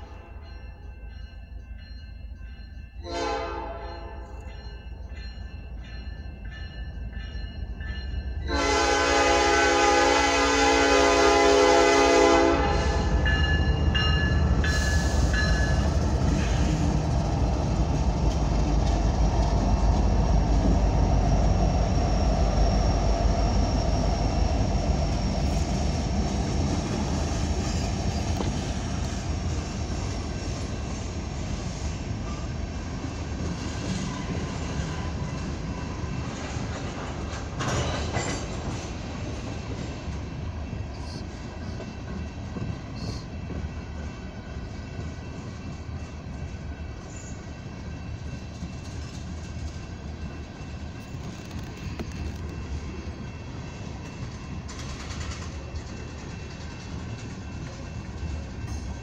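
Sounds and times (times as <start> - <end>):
crossing bell ringing: 0.0 - 18.3, 21.2 - 59.0
train horn blasts: 3.0 - 4.4, 8.4 - 13.4
tank cars rolling on rails: 54.2 - 59.0.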